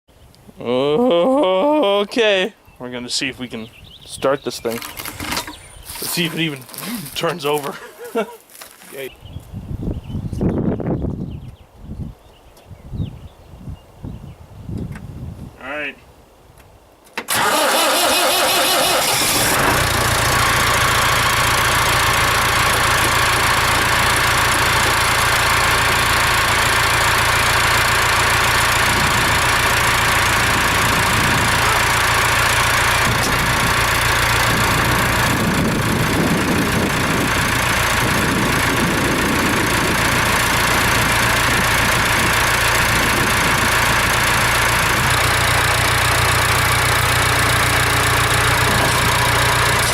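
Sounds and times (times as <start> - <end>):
diesel engine cold-starting: 17.3 - 49.9.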